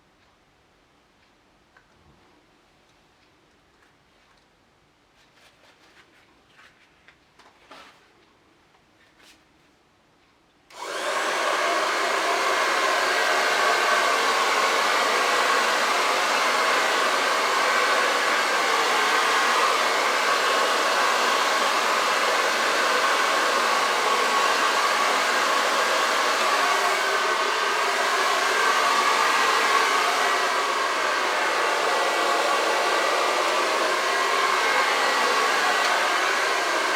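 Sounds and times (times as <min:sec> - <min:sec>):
hair dryer blowing: 0:10.7 - 0:36.9.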